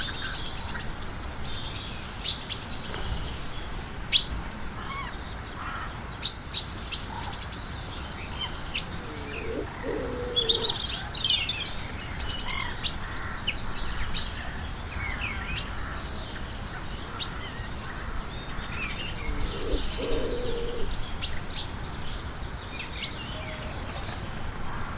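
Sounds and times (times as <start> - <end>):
birds chirping and singing: 0.0 - 14.2, 17.1 - 21.5
lower bird call: 8.4 - 11.1, 18.9 - 20.9.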